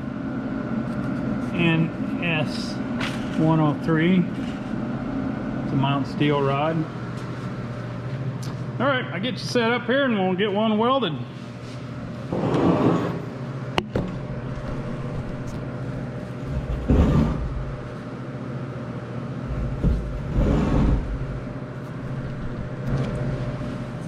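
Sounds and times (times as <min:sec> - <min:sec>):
steady low hum: 0:00.0 - 0:24.0
dull bumps and rumbles: 0:19.5 - 0:23.0.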